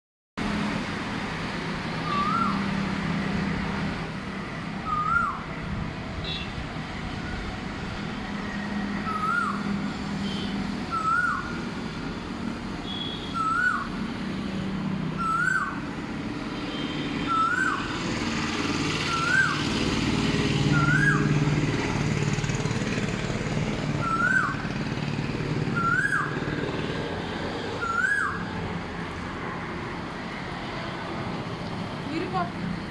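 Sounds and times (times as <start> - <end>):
bird repeating rising call: 10.9 - 11.6, 13.4 - 13.9, 15.2 - 15.8, 17.2 - 18.0, 19.0 - 19.7, 24.0 - 24.7, 25.8 - 26.4
high-pitched bird chirps: 13.4 - 13.9, 15.2 - 15.8, 17.3 - 17.9, 24.0 - 24.6.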